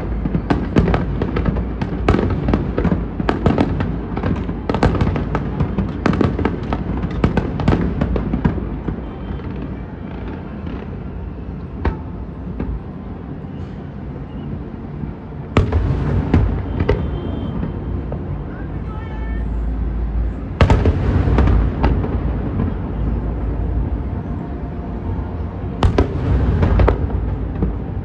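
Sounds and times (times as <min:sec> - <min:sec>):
fireworks bangs: 0:00.0 - 0:14.0, 0:15.4 - 0:19.6, 0:20.2 - 0:28.0
low rumble: 0:19.5 - 0:28.0.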